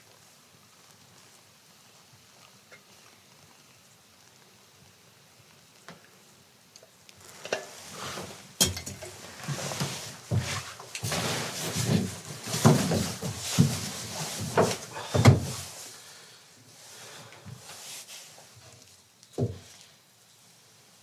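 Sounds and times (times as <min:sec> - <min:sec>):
knocks and clatter of handling: 0:07.4 - 0:15.7.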